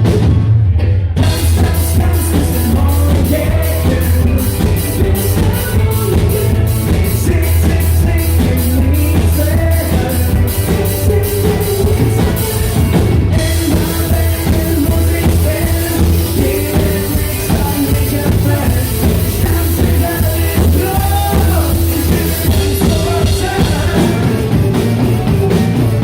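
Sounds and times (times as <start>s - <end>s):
pop-rock band playing: 0.0s - 26.0s
drum beat: 1.2s - 26.0s.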